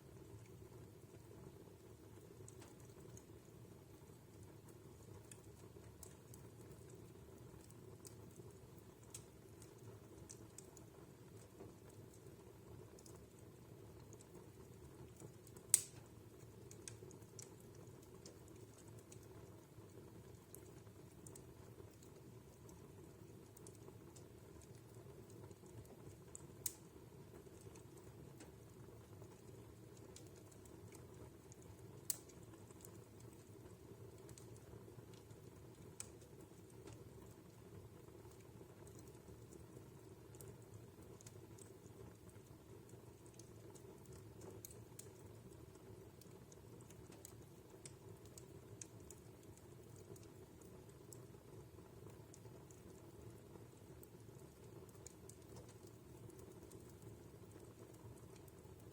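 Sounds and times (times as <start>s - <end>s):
burning wood crackling: 1.7s - 58.9s
fire flames rumbling: 4.8s - 19.5s.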